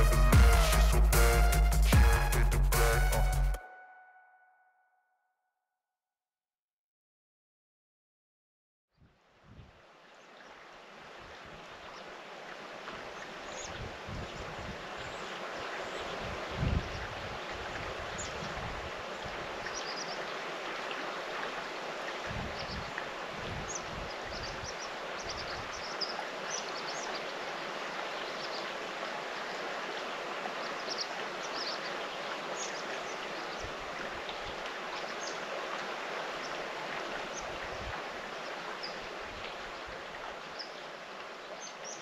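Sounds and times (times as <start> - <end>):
running water: 0.0 - 3.2, 9.4 - 42.0
wind buffeting microphone: 13.6 - 14.8, 16.1 - 19.6, 22.2 - 25.8.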